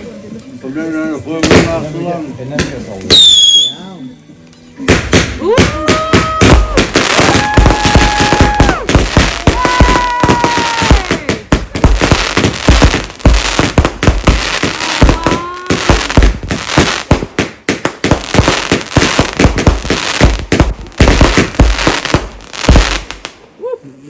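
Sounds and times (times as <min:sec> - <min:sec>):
fireworks bangs and crackles: 0:01.3 - 0:03.7, 0:04.8 - 0:23.5
whistling firework: 0:03.1 - 0:03.8, 0:05.4 - 0:17.0.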